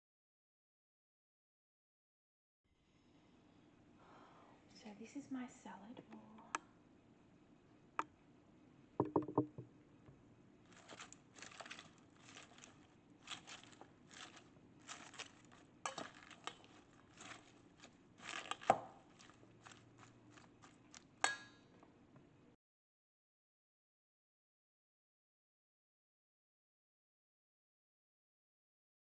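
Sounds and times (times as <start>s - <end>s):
sharp knocks: 9.0s - 9.7s
utensil scraping in a bowl: 10.7s - 21.5s.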